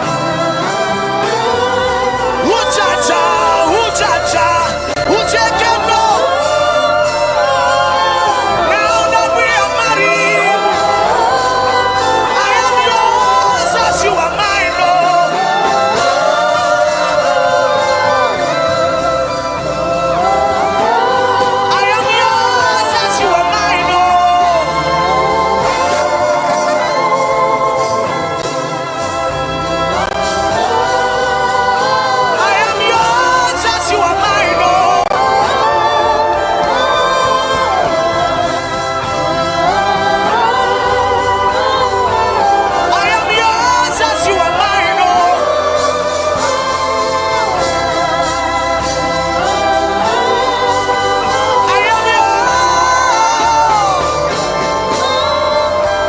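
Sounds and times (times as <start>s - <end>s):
instrumental accompaniment: 0.0s - 56.0s
organ-like keyboard chords: 0.0s - 56.0s
voices singing gospel: 0.0s - 56.0s.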